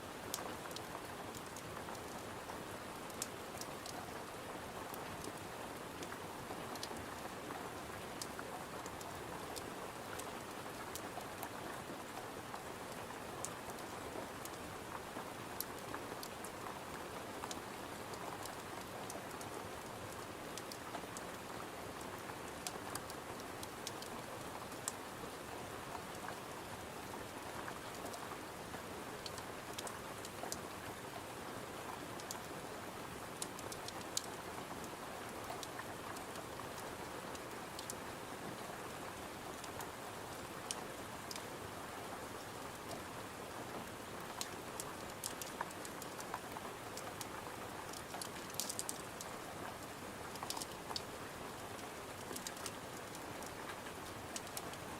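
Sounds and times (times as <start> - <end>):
steady rain: 0.0 - 54.9
wood fire crackling: 47.9 - 49.2, 50.3 - 51.1.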